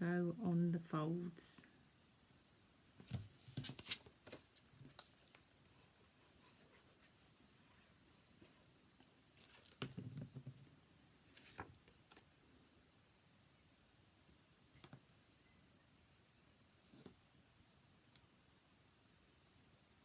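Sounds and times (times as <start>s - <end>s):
paper rustling and tapping: 3.0s - 5.4s.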